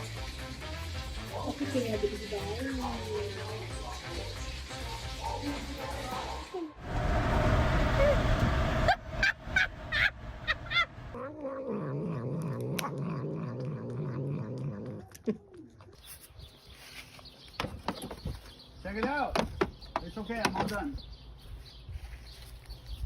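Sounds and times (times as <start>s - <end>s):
loud noise: 6.8s - 11.1s.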